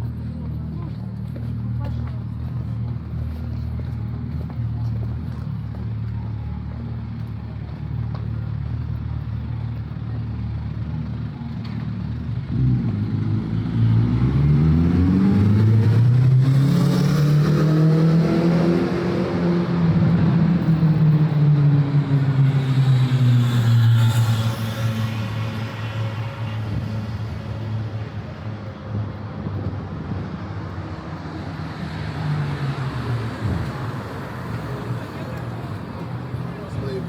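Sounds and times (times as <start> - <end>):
car engines pulling away: 11.2 - 37.0.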